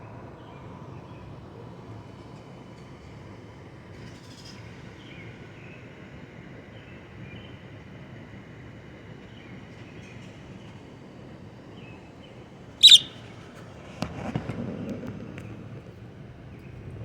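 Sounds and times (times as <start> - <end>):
bird sharp contact call: 12.8 - 13.2.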